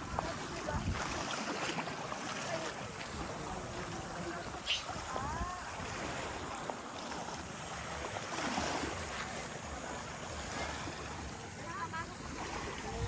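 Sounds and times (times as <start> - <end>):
wind rumbling on microphone: 0.0 - 1.5, 2.9 - 13.0
small waves washing on beach: 0.0 - 13.0.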